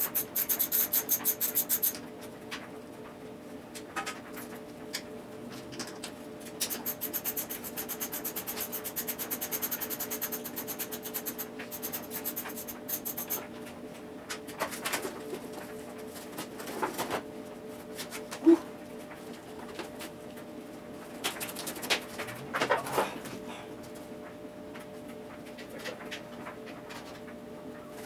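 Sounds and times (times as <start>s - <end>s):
ratchet wrench clicking: 0.0s - 2.0s, 6.7s - 13.4s
steady hum: 0.0s - 2.0s, 6.2s - 13.6s.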